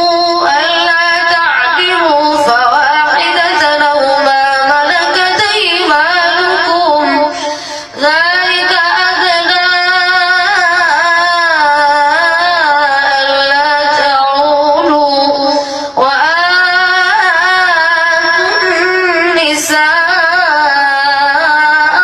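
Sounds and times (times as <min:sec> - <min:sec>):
boy chanting melodically: 0:00.0 - 0:22.0.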